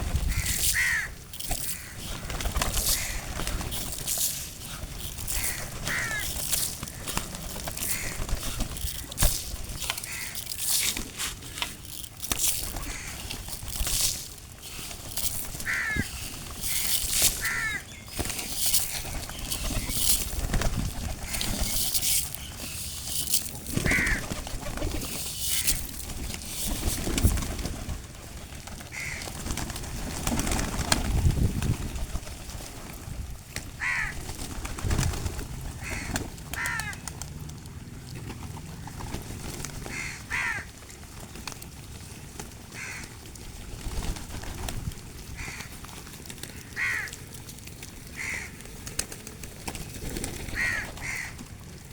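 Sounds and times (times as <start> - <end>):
pigeons cooing: 0.0 - 27.6.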